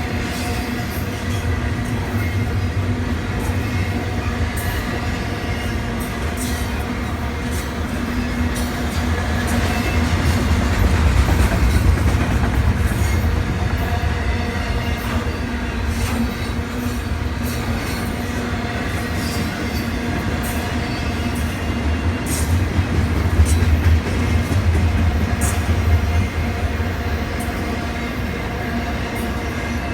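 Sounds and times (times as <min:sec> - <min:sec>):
train wheels rumbling on rail: 0:00.0 - 0:29.9.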